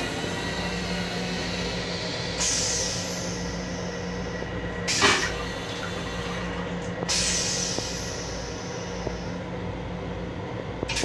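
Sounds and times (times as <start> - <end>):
electric railcar hum: 0.0 - 11.0.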